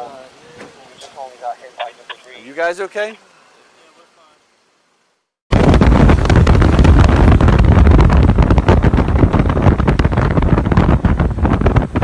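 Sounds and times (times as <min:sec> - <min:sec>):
wind buffeting a microphone: 0:05.5 - 0:12.0.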